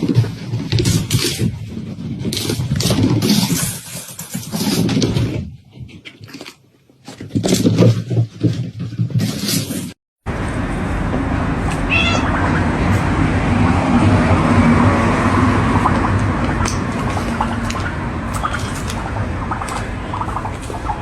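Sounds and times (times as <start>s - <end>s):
noisy background: 10.3s - 21.0s
cat meowing: 11.7s - 12.4s.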